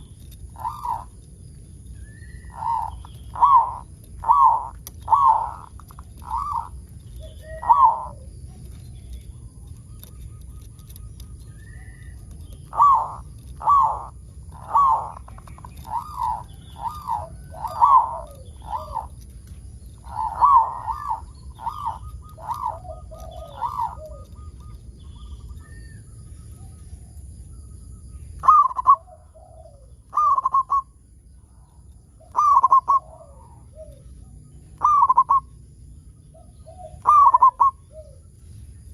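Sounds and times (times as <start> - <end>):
dove cooing: 0.0 - 26.2, 28.4 - 31.0, 31.6 - 35.6, 36.3 - 38.4
low background rumble: 0.0 - 38.9.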